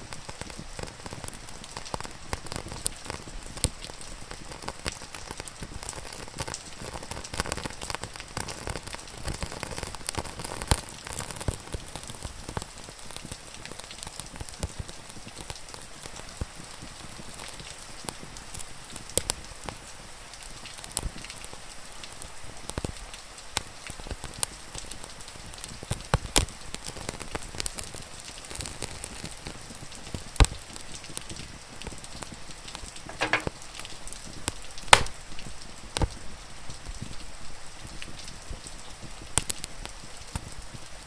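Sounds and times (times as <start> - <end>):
loud cracks of fire: 0.0 - 19.8, 20.4 - 37.1, 37.8 - 40.8
rain hissing: 0.0 - 41.0
wood fire crackling: 0.0 - 41.0
sharp pops of fire: 0.1 - 16.2, 33.0 - 33.9, 34.5 - 36.2.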